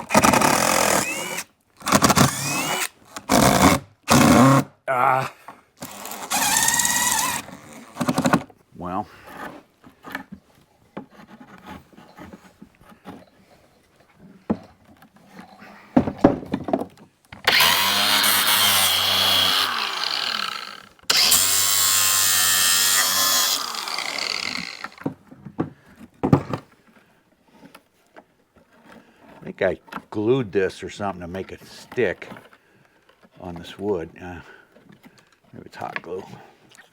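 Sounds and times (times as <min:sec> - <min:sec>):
impact wrench whirring: 0:00.0 - 0:04.7, 0:05.8 - 0:08.4, 0:17.4 - 0:25.1
knocks of handling wood: 0:14.1 - 0:17.5, 0:24.3 - 0:30.2.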